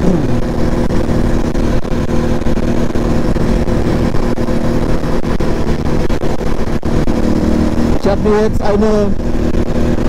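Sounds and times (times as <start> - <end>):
quad engine running: 0.0 - 10.0.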